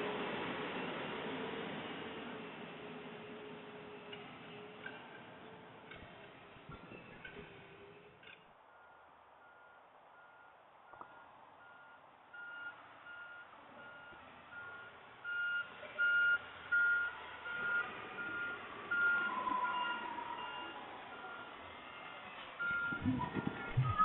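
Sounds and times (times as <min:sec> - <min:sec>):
truck backup alarm beeping: 0:08.7 - 0:21.6, 0:22.6 - 0:24.0
garbage truck noise: 0:15.7 - 0:24.0.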